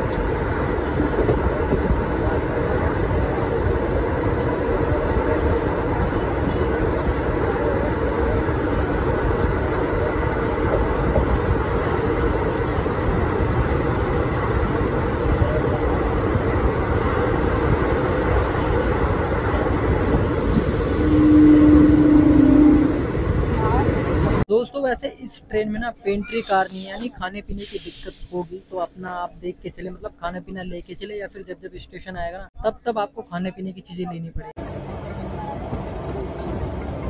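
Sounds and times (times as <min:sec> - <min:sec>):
train rumbling on rails: 0:00.0 - 0:24.5, 0:34.5 - 0:37.0
train horn: 0:20.8 - 0:23.1.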